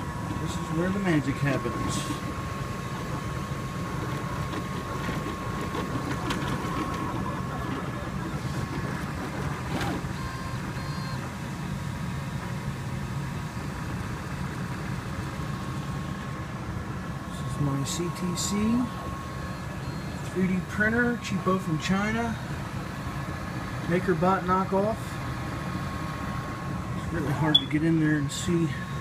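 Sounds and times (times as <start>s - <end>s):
high whine: 0.0s - 29.0s
short high tones: 27.4s - 28.1s.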